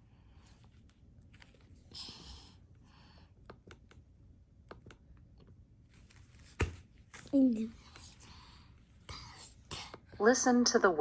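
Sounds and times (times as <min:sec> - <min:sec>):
light clicks and taps on device: 0:03.4 - 0:04.0, 0:04.6 - 0:05.6.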